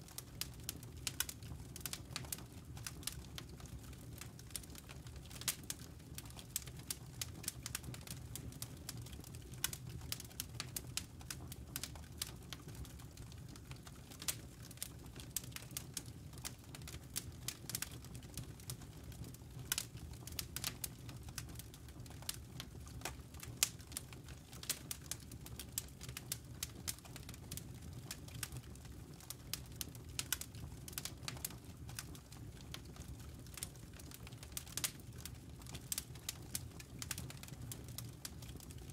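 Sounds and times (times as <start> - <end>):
fire low rumble: 0.0 - 38.9
logs crackling and popping: 0.0 - 38.9.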